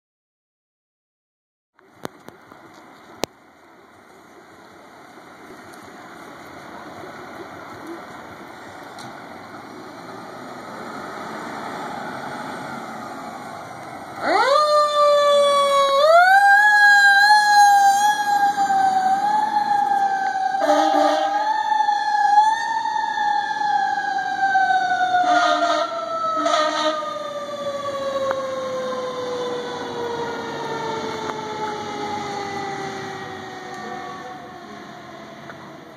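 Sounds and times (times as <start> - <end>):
truck rumble approaching: 1.8 - 35.9
fire engine siren wailing: 4.2 - 35.9
short horn blasts: 20.6 - 21.3, 25.2 - 27.0.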